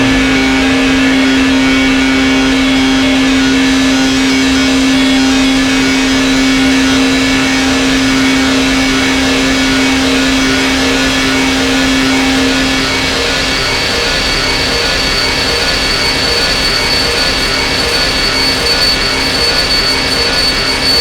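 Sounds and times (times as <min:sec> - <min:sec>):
gritty synth noise texture: 0:00.0 - 0:03.3
synthesizer low drone: 0:00.0 - 0:21.0.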